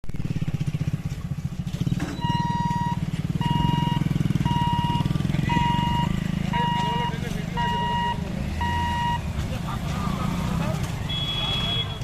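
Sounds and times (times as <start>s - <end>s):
vehicle engine rumbling: 0.0s - 12.0s
electronic beeper long beeps: 2.2s - 9.2s.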